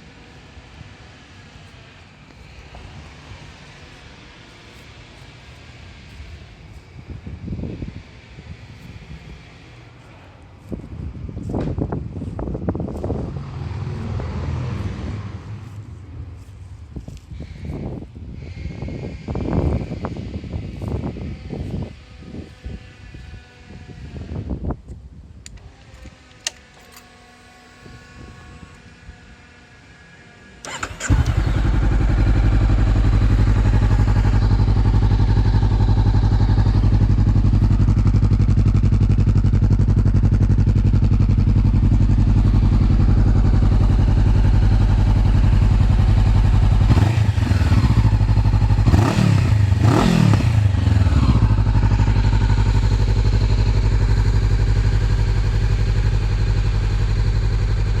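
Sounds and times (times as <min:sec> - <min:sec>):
engine revving with throttle blips: 0:27.0 - 0:58.0
motorcycle engine starting: 0:30.6 - 0:58.0
motorcycle engine idling: 0:30.7 - 0:58.0.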